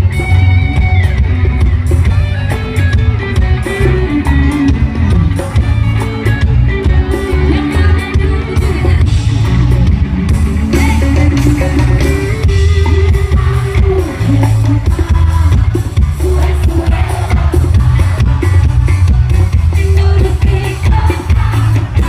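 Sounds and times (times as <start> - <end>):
drum kit: 0.0 - 22.0
heavy pulsing bass: 0.0 - 22.0
live band music: 0.0 - 22.0.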